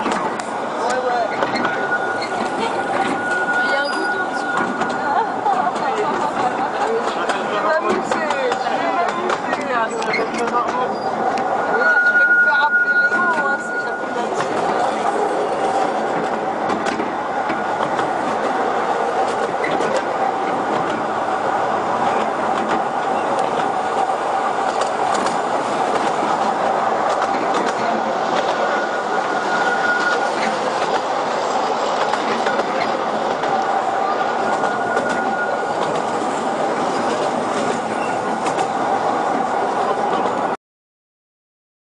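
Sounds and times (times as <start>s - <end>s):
train wheels rumbling on rails: 0.0s - 40.6s
train wheel squeal: 1.2s - 5.2s, 10.0s - 15.9s, 28.6s - 30.9s, 34.2s - 38.3s.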